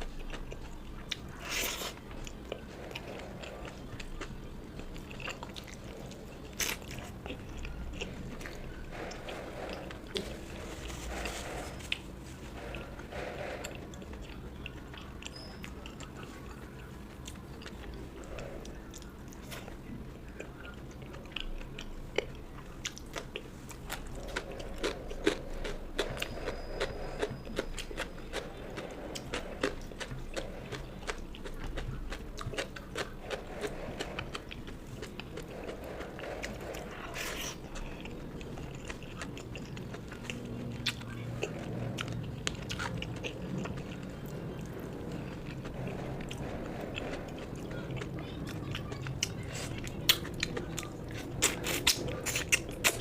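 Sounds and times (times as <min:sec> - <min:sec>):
chewing and biting food: 0:00.0 - 0:53.0.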